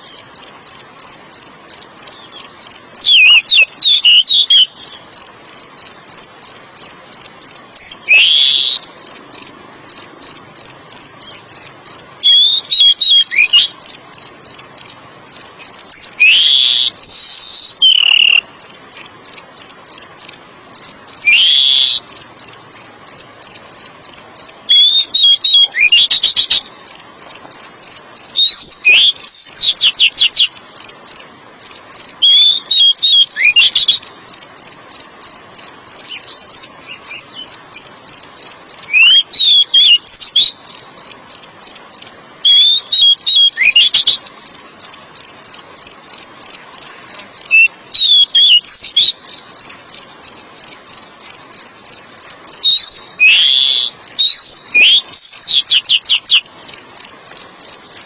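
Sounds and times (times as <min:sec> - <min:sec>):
cricket chirping: 0:00.0 - 0:58.0
bird singing whistled phrases: 0:02.0 - 0:05.0, 0:07.8 - 0:08.9, 0:12.2 - 0:13.8, 0:15.9 - 0:18.5, 0:21.2 - 0:22.0, 0:24.7 - 0:26.7, 0:28.3 - 0:30.6, 0:32.2 - 0:34.1, 0:38.7 - 0:40.6, 0:42.4 - 0:44.3, 0:47.4 - 0:49.2, 0:52.6 - 0:56.5.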